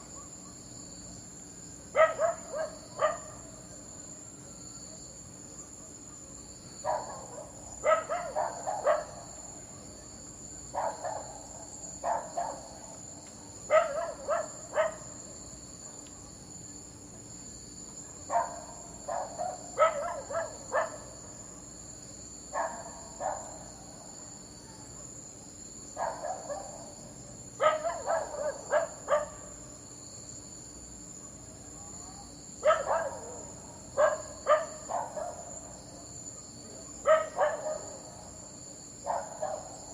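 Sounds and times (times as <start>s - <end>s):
dog barking: 1.9s - 3.4s, 6.8s - 9.3s, 10.7s - 12.8s, 13.7s - 15.2s, 18.0s - 21.7s, 22.5s - 23.7s, 26.0s - 27.0s, 27.6s - 29.6s, 32.6s - 35.6s, 36.9s - 38.1s, 39.0s - 39.9s.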